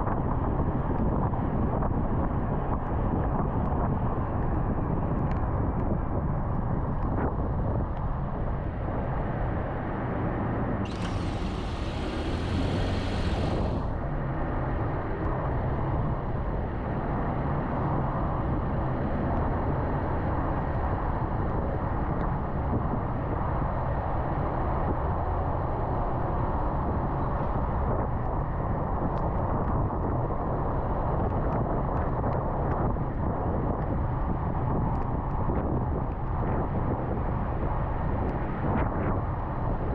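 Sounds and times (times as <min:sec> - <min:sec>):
wind: 0:00.0 - 0:39.9
car road noise: 0:08.7 - 0:14.6
hiss: 0:10.9 - 0:13.9.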